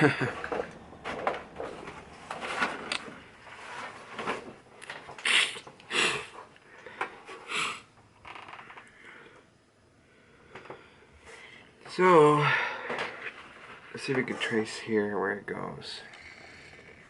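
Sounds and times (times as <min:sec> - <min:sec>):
plastic sheets crinkling and scraping: 0:00.4 - 0:05.3, 0:12.9 - 0:14.8.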